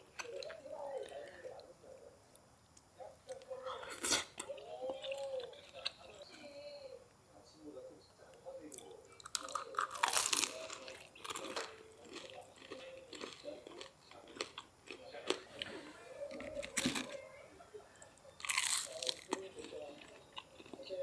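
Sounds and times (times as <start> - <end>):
person chewing crunchy food: 8.7 - 17.2, 18.2 - 21.0.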